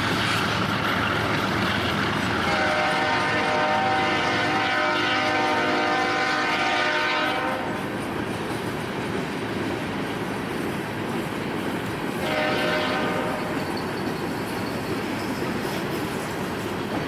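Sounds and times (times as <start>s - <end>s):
train rumbling on rails: 0.0s - 17.0s
locomotive air horn blasts: 2.4s - 8.0s, 12.2s - 13.6s.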